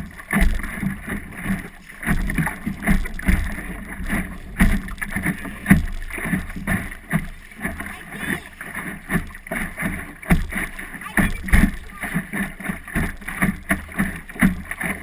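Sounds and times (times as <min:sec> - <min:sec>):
wind rumbling on microphone: 0:00.0 - 0:07.8
water splashing against hull: 0:00.0 - 0:15.0.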